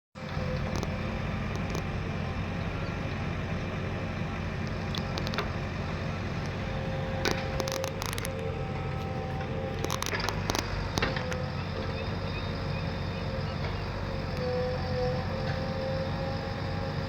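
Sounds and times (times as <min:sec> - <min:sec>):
diesel engine rumbling: 0:00.2 - 0:17.0
sharp clicks: 0:04.6 - 0:05.6, 0:07.2 - 0:08.5, 0:09.8 - 0:11.5.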